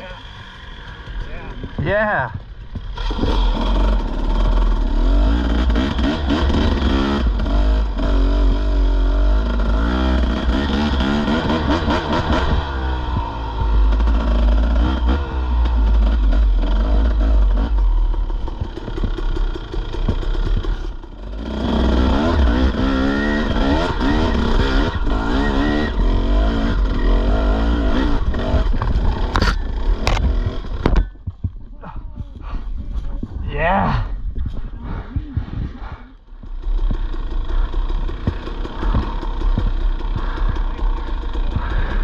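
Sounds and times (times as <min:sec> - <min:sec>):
dirt bike engine revving: 0:00.0 - 0:31.3, 0:33.8 - 0:42.0
bike clattering over rough ground: 0:17.4 - 0:21.2, 0:36.3 - 0:42.0.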